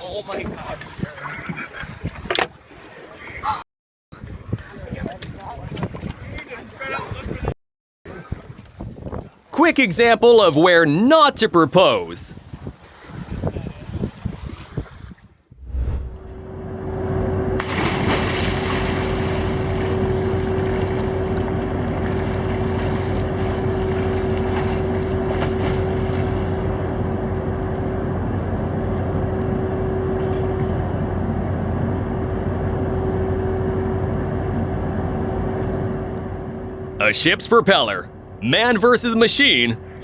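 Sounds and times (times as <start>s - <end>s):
rushing noise: 15.6s - 16.5s.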